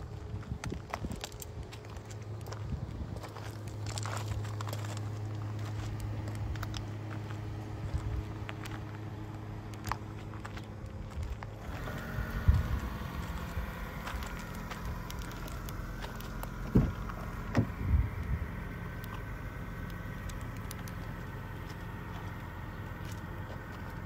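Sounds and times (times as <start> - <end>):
car engine idling: 0.0 - 24.0
dull bumps: 9.8 - 18.4.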